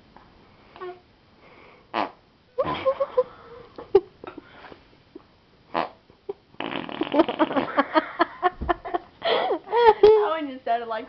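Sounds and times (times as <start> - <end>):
arm fart noises: 6.6 - 7.8.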